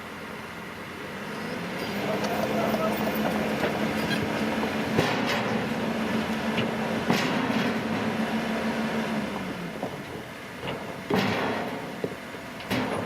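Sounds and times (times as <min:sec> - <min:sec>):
diesel engine running: 0:00.0 - 0:13.0
sharp metallic clanks: 0:10.6 - 0:12.0, 0:12.6 - 0:13.0.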